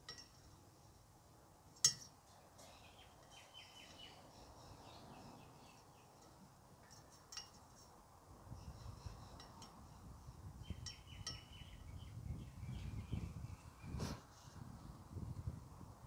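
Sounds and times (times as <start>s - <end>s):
distant birds chirping: 2.4s - 6.7s, 8.6s - 14.0s.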